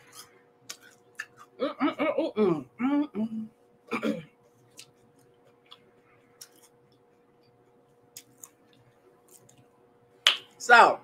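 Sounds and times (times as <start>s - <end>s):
chewing food: 0.0s - 1.6s, 4.6s - 9.7s
faint steady hum: 0.0s - 11.0s.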